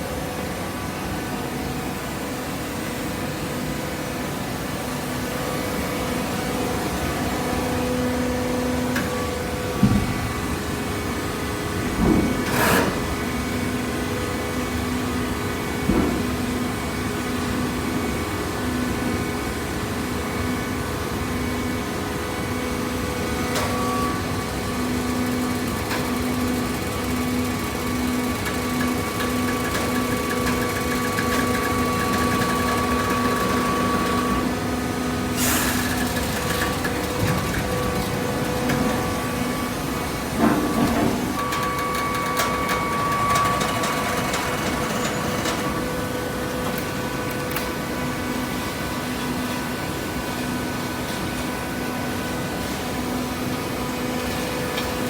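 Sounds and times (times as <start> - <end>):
hydraulic machine hum: 22.4 - 48.7.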